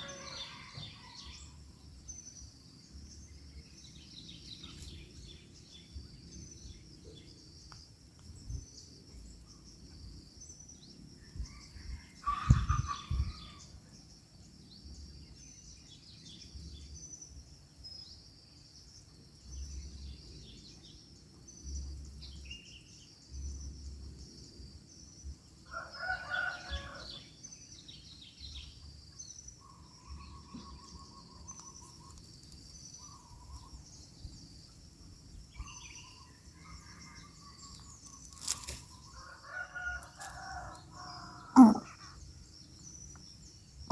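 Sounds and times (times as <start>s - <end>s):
rooster crowing: 0.0s - 1.3s, 25.7s - 27.2s, 39.2s - 41.8s
insect chirring: 28.6s - 43.9s
faint birds calling: 29.3s - 34.5s, 41.2s - 42.3s.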